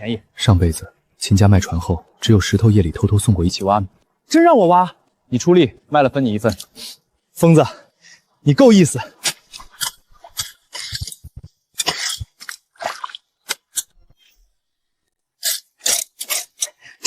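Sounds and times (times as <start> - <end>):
digging in wet sand: 9.1 - 13.9.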